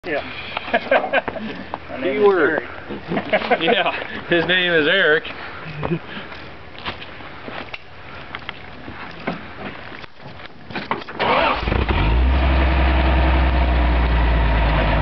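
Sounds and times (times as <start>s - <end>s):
car engine starting and idling: 11.2s - 15.0s.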